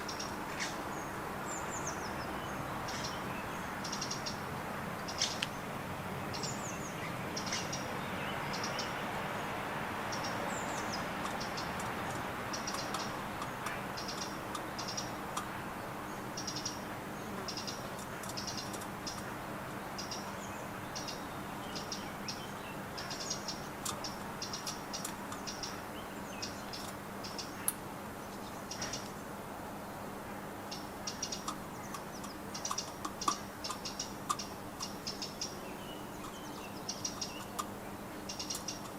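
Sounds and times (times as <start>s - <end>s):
small birds chirping: 0.0s - 38.9s
steady background hiss: 0.0s - 38.9s
sharp clicks: 11.2s - 15.5s, 23.8s - 25.8s, 31.2s - 35.5s, 36.2s - 38.9s.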